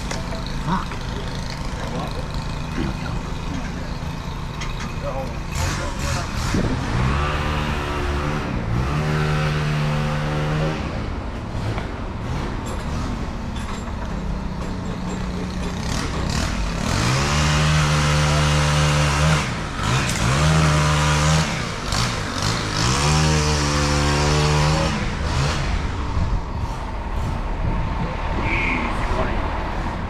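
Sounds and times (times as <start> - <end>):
machinery noise: 0.0 - 10.8
engine revving: 0.0 - 13.4, 15.2 - 30.0.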